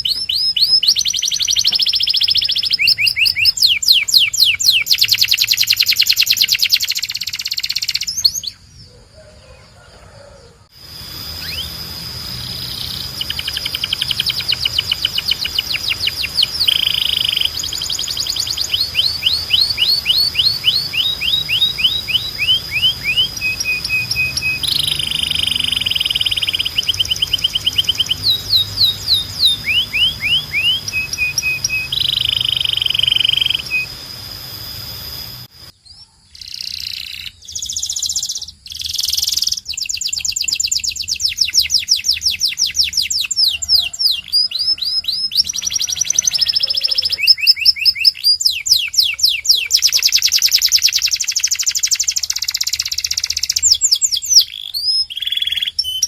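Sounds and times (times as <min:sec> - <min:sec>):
canary singing trills: 0:00.0 - 0:56.0
steady high held tone: 0:10.7 - 0:35.7.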